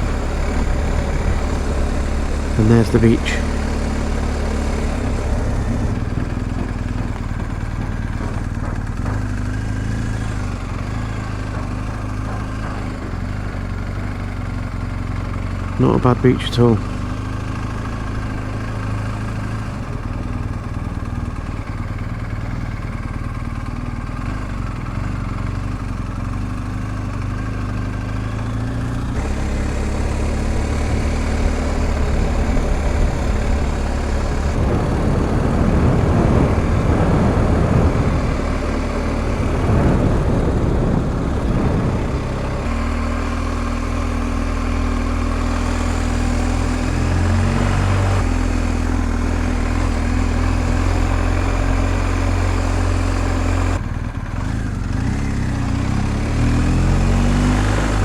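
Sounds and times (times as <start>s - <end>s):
motorcycle engine running: 0.0s - 58.0s
wind noise: 29.2s - 44.3s.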